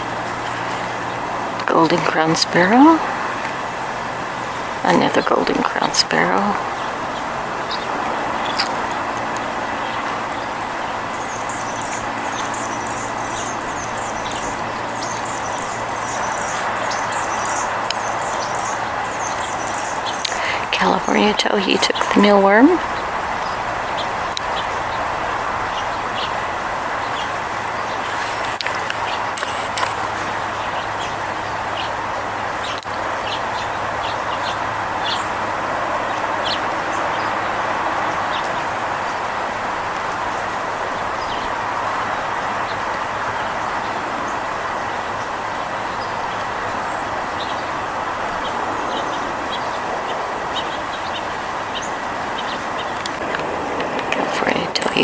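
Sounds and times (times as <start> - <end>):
steady rushing noise: 0.0 - 55.0
small bird chirping: 4.5 - 32.0
loud rushing noise: 34.6 - 55.0.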